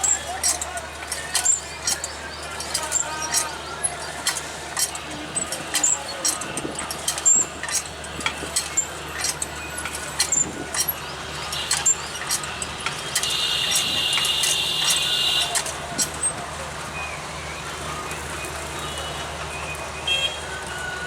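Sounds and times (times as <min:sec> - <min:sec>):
train wheels clicking on rails: 0:00.0 - 0:16.6
low train hum: 0:00.0 - 0:17.9.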